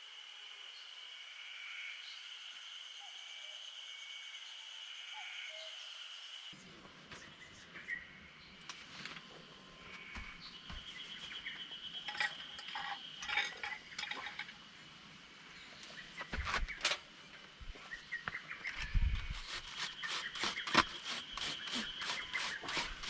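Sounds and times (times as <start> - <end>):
birds chirping: 9.7 - 14.5, 15.4 - 23.0.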